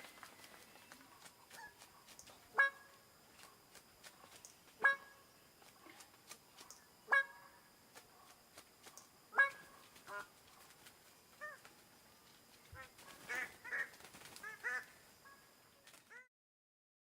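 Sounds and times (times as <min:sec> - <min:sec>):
bird honking calls: 0:02.5 - 0:03.0, 0:04.8 - 0:05.3, 0:07.0 - 0:07.6, 0:09.3 - 0:10.4, 0:12.8 - 0:15.5.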